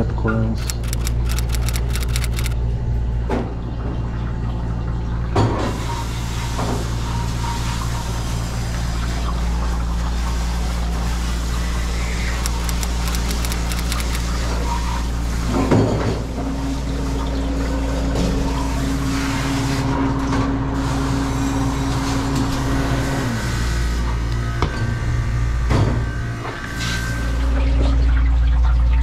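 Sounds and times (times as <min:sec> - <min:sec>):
higher machine hum: 0:00.6 - 0:02.6, 0:08.8 - 0:15.5.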